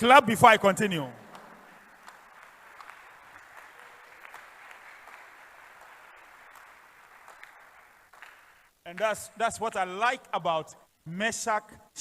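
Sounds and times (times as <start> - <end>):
crowd clapping: 0.7 - 9.1.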